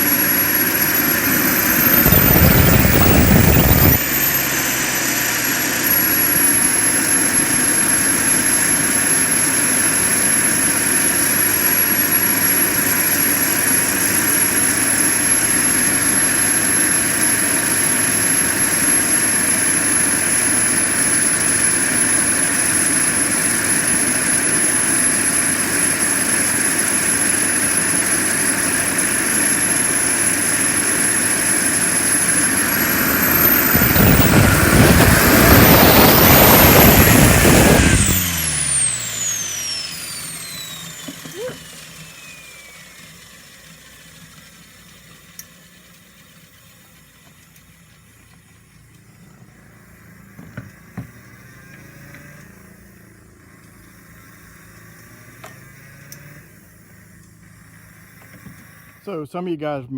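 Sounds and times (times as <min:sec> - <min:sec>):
propeller noise: 0:00.0 - 0:44.1
model turbine high-pitched whine: 0:00.0 - 0:59.4.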